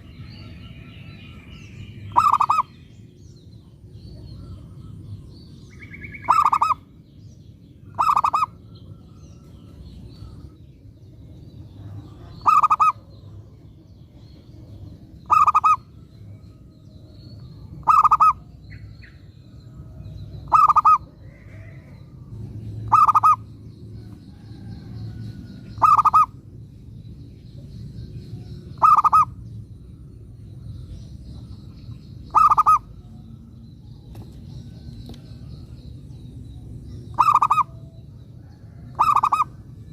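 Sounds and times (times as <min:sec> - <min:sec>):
low steady rumble: 0:00.0 - 0:39.9
small birds chirping: 0:00.0 - 0:39.9
dove cooing: 0:02.1 - 0:02.7, 0:06.1 - 0:06.8, 0:08.0 - 0:08.6, 0:12.1 - 0:13.1, 0:15.3 - 0:15.8, 0:17.8 - 0:18.5, 0:20.5 - 0:21.8, 0:22.8 - 0:23.4, 0:25.8 - 0:26.3, 0:28.8 - 0:29.3, 0:32.3 - 0:33.0, 0:37.1 - 0:37.8, 0:38.7 - 0:39.6.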